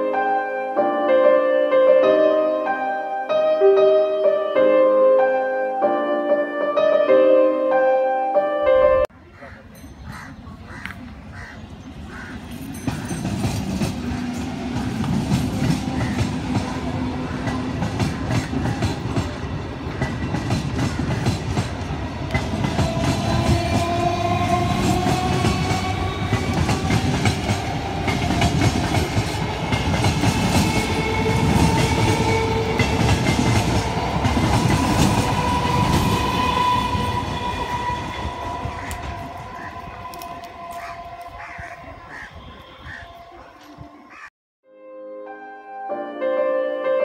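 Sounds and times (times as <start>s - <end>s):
train rumbling past: 11.2s - 43.9s.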